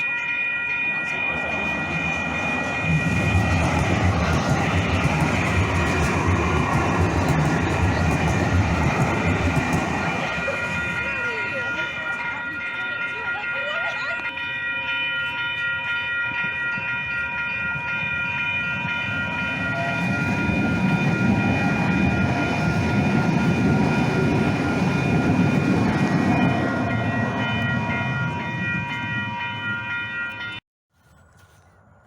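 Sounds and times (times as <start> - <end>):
train high-pitched whine: 0.0 - 30.6
train wheels rumbling: 0.0 - 30.6.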